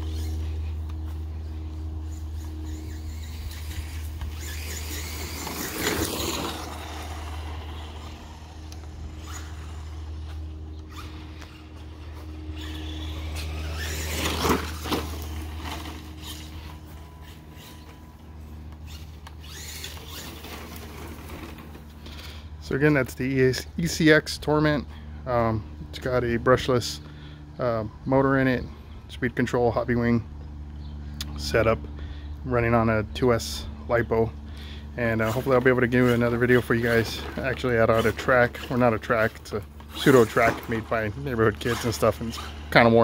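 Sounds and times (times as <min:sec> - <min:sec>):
rc truck motor whining: 0:00.0 - 0:25.1, 0:31.6 - 0:43.0
steady low hum: 0:00.0 - 0:43.0.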